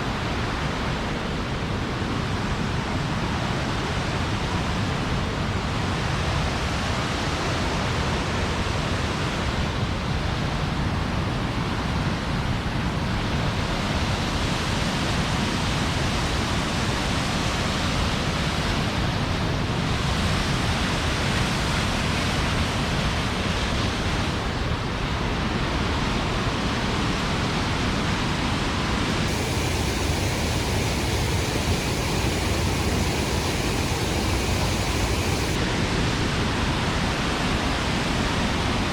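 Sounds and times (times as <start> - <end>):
falling water rushing: 29.2 - 35.6.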